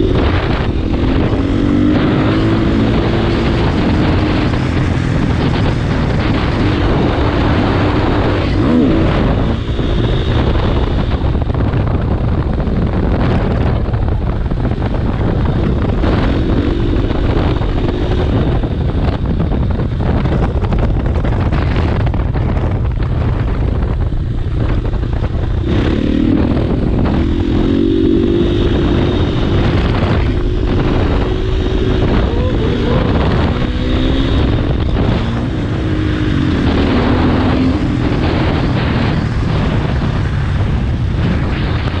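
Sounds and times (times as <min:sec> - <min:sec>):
wind rush on microphone: 0:00.0 - 0:42.0
dirt bike engine revving: 0:06.3 - 0:11.1, 0:25.6 - 0:39.1.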